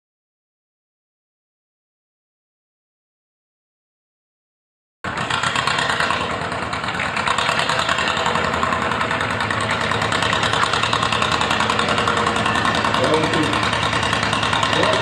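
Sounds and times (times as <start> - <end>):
tractor engine running: 5.0 - 15.0.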